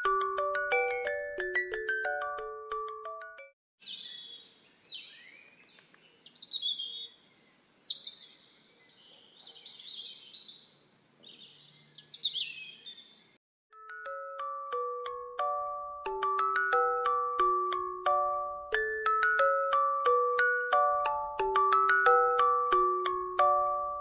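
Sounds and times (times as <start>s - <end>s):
glockenspiel music: 0.0s - 3.6s, 13.7s - 24.0s
small birds calling: 3.8s - 13.4s.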